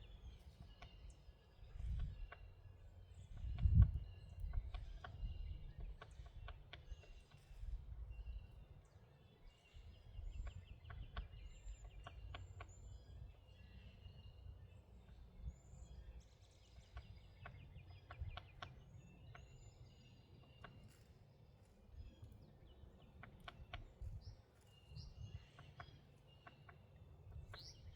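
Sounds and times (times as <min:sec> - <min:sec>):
birds chirping and trilling: 0:00.0 - 0:27.9
wind on microphone: 0:01.6 - 0:02.3, 0:03.2 - 0:08.6, 0:23.7 - 0:25.5.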